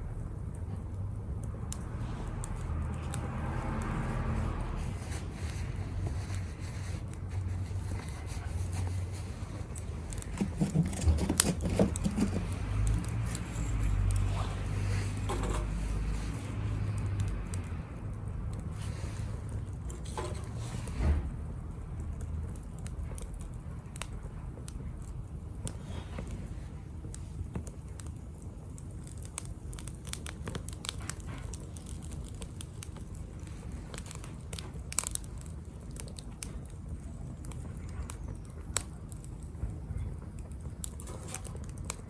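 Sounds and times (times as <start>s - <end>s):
low steady rumble: 0.0s - 29.0s
wood fire crackling: 0.0s - 42.0s.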